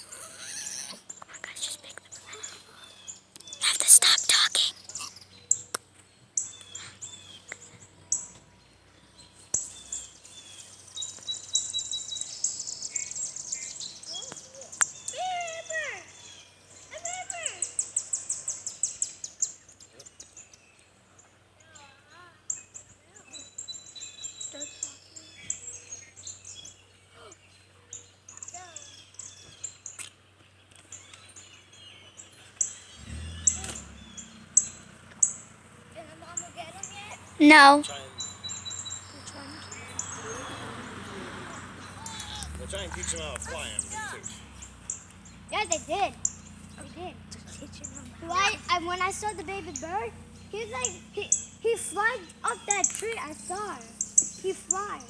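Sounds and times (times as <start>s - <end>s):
small songbirds chirping: 0.0s - 55.0s
piping bird notes: 32.9s - 40.2s.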